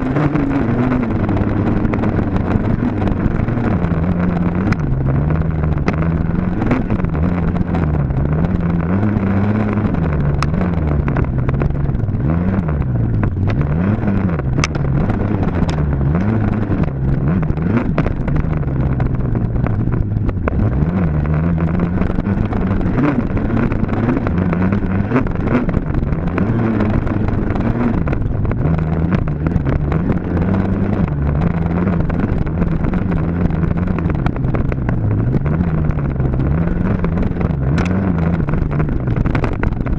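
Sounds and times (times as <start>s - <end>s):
dirt bike engine revving: 20.4s - 39.5s.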